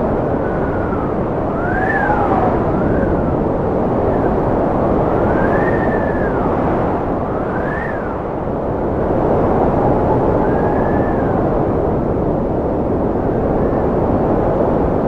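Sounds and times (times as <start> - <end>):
howling wind whistle: 0.0 - 15.0
strong wind rushing: 0.0 - 15.0.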